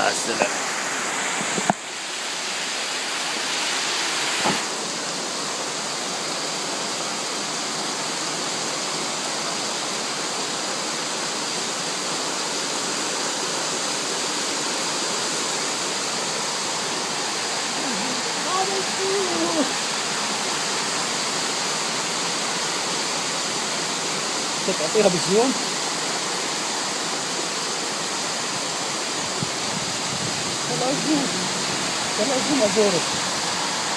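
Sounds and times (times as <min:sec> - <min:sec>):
heavy rain pouring: 0:00.0 - 0:33.9.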